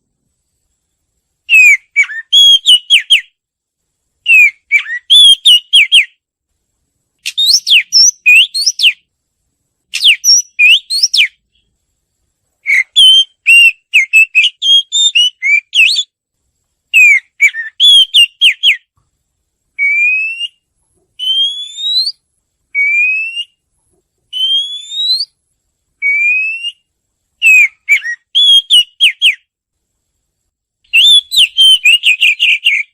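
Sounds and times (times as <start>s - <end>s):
bird singing whistled phrases: 1.5s - 3.3s, 4.2s - 6.2s, 7.2s - 9.0s, 9.9s - 11.4s, 12.6s - 16.2s, 16.9s - 18.9s, 19.8s - 20.6s, 21.2s - 23.6s, 24.3s - 25.4s, 26.0s - 29.5s, 30.9s - 32.9s.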